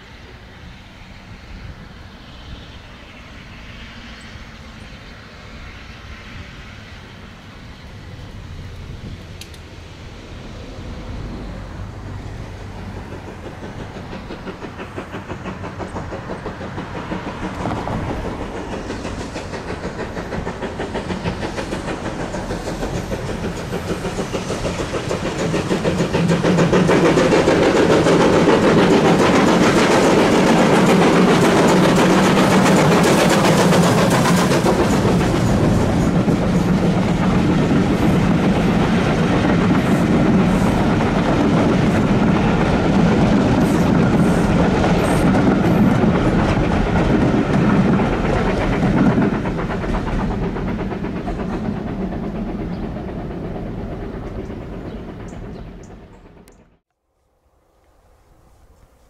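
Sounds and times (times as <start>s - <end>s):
train approaching: 0.0s - 59.0s
fast rhythmic train beat: 10.0s - 56.8s.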